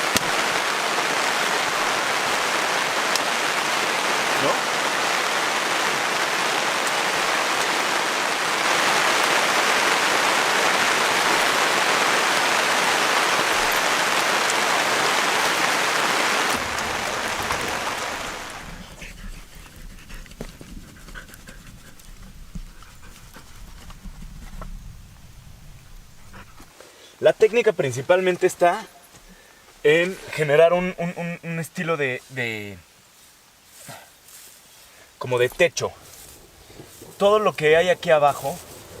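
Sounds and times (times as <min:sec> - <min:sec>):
small crackles and pops: 0:00.0 - 0:00.7, 0:01.3 - 0:05.2, 0:06.0 - 0:07.8, 0:16.4 - 0:26.7
heavy rain pouring: 0:00.0 - 0:26.7, 0:36.1 - 0:39.0.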